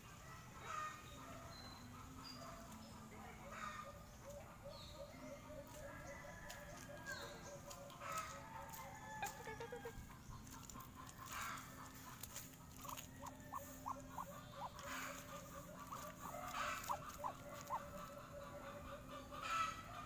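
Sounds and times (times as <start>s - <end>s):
steady low hum: 9.3s - 20.0s.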